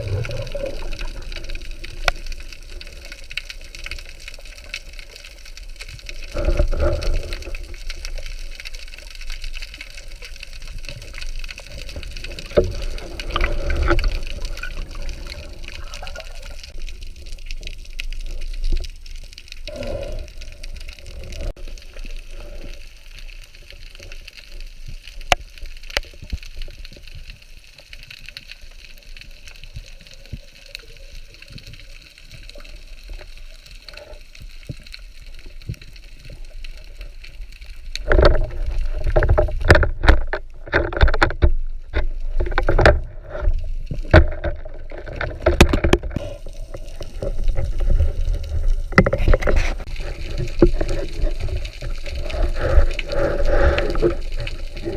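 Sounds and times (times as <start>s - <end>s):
water sloshing and splashing: 0.0s - 54.9s
underwater hiss: 19.7s - 23.2s, 49.3s - 54.9s.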